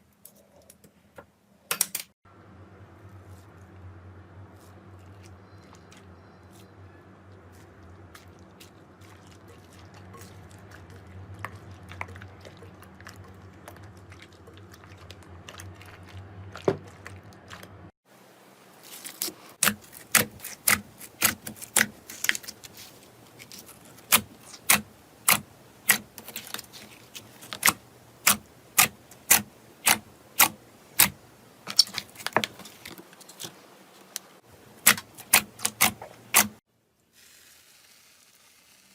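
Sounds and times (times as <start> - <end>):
low hum: 2.3 - 17.9.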